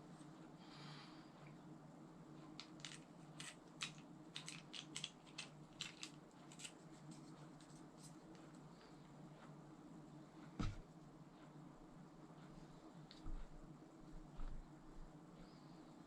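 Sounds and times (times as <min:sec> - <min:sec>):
faint steady low hum: 0:00.0 - 0:16.0.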